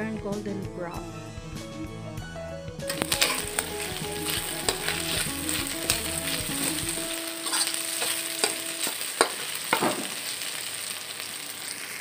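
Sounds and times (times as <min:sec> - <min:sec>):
chicken sizzling in hot oil: 0:02.9 - 0:12.0
utensil clicking against a pan: 0:07.5 - 0:10.0.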